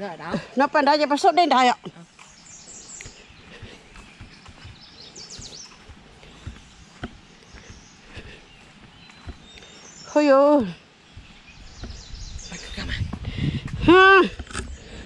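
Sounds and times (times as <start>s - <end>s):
outdoor background noise: 0.0s - 15.0s
high falling bird chirps: 2.1s - 13.2s.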